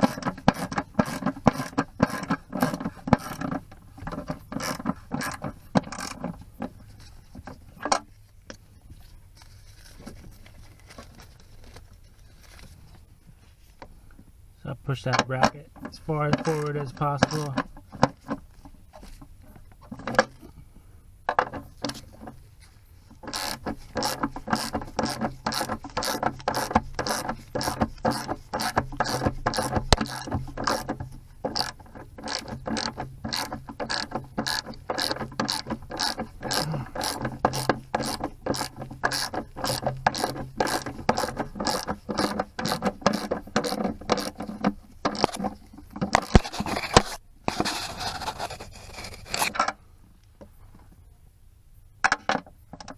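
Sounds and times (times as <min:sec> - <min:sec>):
ratchet clicking: 0:00.0 - 0:06.3, 0:23.2 - 0:45.4
scraping rustling noise: 0:00.0 - 0:14.1, 0:15.7 - 0:20.6, 0:32.3 - 0:49.6.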